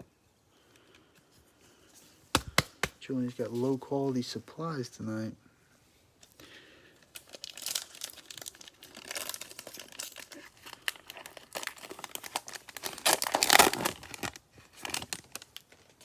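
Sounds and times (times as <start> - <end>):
plastic sleeves crinkling: 6.2 - 16.0.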